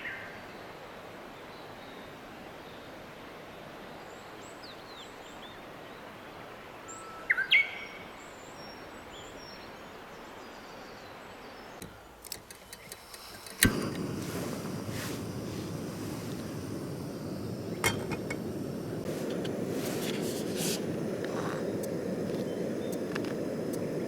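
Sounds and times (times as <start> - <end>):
small birds chirping: 8.4 - 24.0
steady rushing noise: 12.8 - 24.0.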